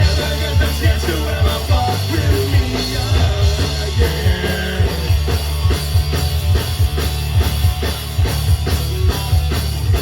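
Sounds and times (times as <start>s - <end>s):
person singing: 0.0s - 5.2s
punk rock band playing: 0.0s - 10.0s.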